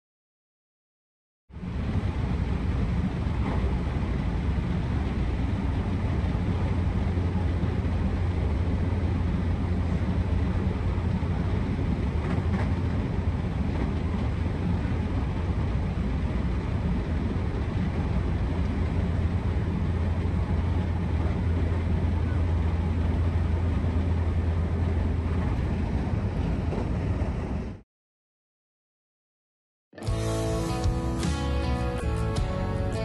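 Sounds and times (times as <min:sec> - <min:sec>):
train wheels humming on rail: 0:01.6 - 0:27.8.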